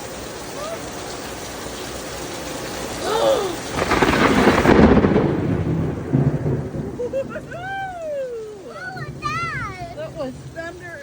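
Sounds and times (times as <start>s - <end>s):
steady rain: 0.0s - 11.0s
thunder clap and rumble: 3.6s - 11.0s.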